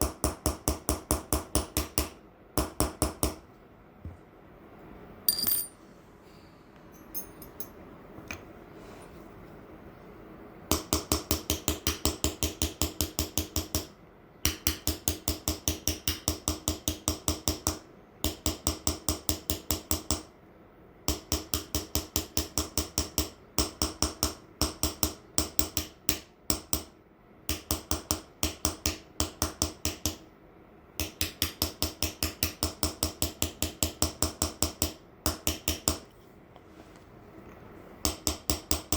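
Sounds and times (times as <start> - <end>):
hammer tapping metal chisel: 5.3 - 5.8, 6.9 - 8.4.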